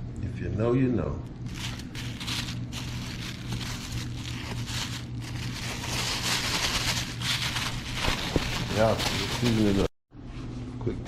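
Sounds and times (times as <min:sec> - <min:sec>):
low hum: 0:01.1 - 0:09.4.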